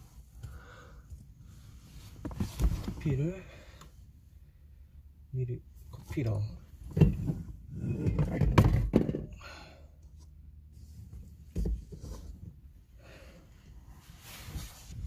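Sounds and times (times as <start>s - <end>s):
rustling: 13.9s - 15.0s.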